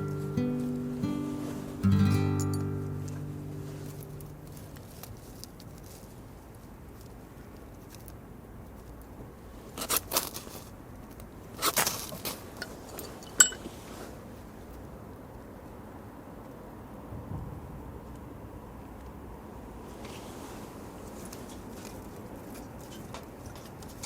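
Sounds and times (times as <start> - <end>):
sharp ringing clink: 13.0 - 13.6.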